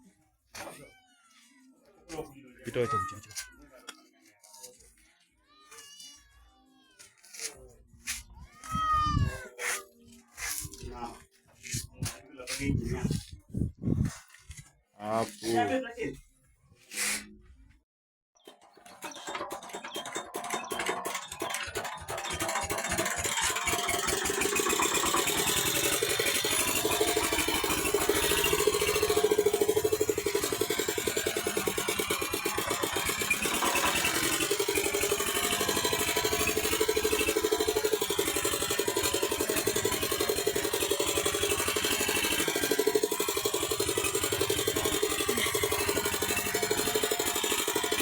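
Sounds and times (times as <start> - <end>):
walking tractor engine starting: 18.4 - 48.0.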